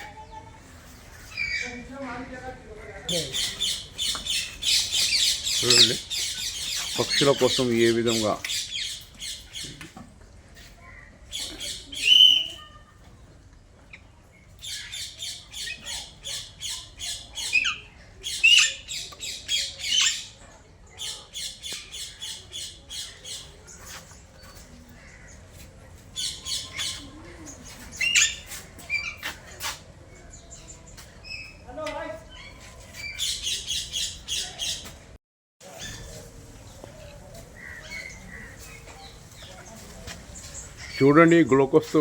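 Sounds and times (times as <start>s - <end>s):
parakeets calling shrilly: 1.1s - 1.9s, 3.1s - 9.7s, 11.3s - 13.0s, 14.6s - 20.4s, 26.1s - 29.5s.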